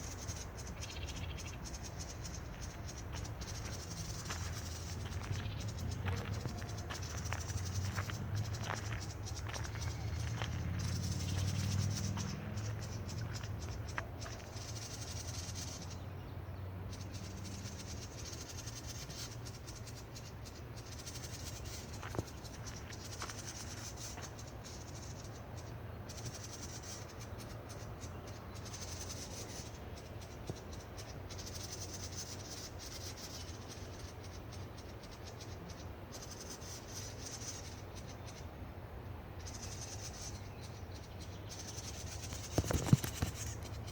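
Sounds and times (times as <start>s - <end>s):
steady low rumble: 0.0s - 14.9s.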